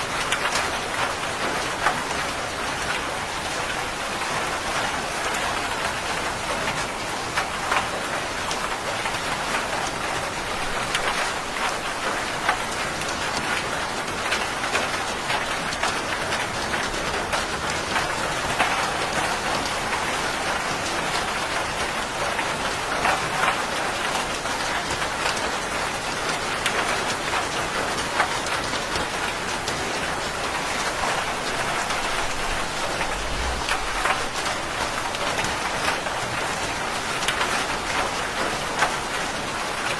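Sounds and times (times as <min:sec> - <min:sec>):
rain falling: 0:00.0 - 0:39.9
distant thunder rumble: 0:31.9 - 0:35.5.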